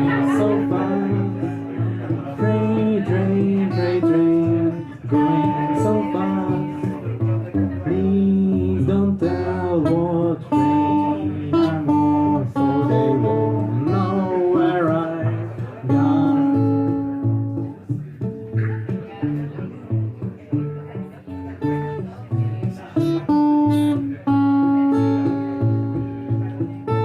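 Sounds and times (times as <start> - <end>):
man singing: 0.0 - 17.6
fingerstyle acoustic guitar: 0.0 - 27.0.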